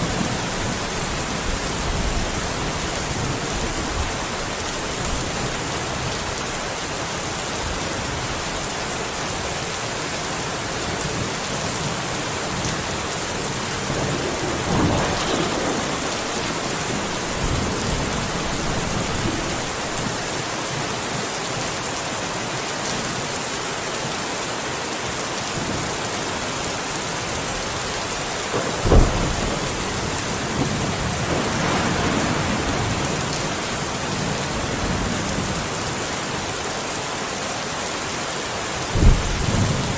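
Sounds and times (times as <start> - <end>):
heavy rain falling: 0.0 - 39.9
thunder rumbling: 12.8 - 20.2, 27.9 - 35.8, 38.9 - 39.9
loud thunderclap: 13.8 - 20.2, 28.5 - 35.6, 38.9 - 39.9.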